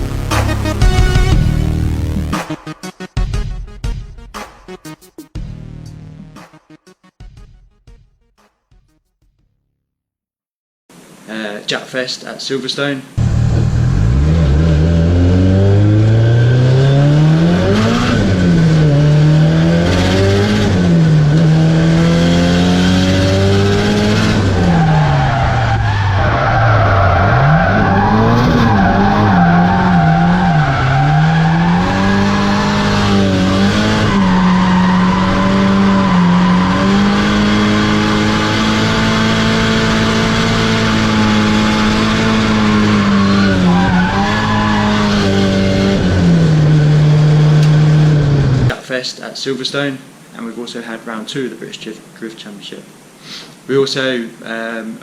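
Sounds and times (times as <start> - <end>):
turbocharged car engine revving: 13.2 - 48.8
tyres skidding and squealing: 13.2 - 48.8.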